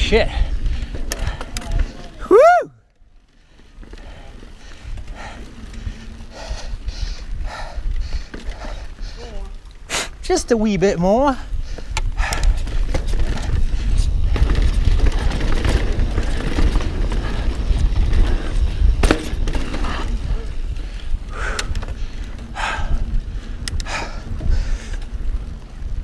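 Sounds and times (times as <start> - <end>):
bike rattling: 0.0 - 26.0
bike tyres on dirt trail: 0.0 - 26.0
wind on microphone: 4.0 - 9.7, 11.3 - 26.0.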